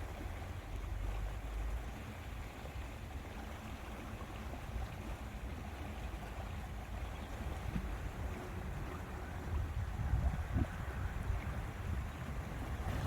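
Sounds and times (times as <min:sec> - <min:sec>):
lake water: 0:00.0 - 0:13.0
wind buffeting microphone: 0:07.5 - 0:13.0.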